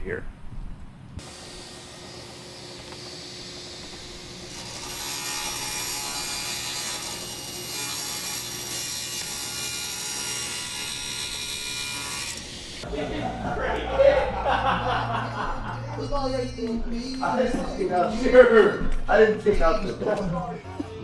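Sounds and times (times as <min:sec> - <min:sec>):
wood being sawn: 0:01.2 - 0:12.9.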